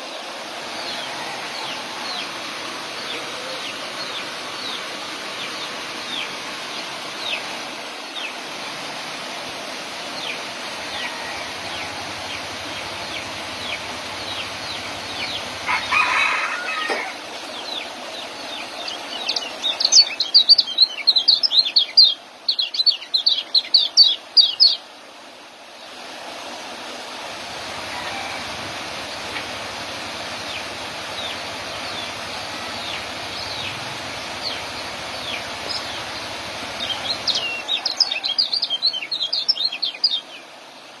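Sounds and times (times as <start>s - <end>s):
rustle: 0.0s - 41.0s
songbird twittering: 16.5s - 24.8s, 32.8s - 40.4s.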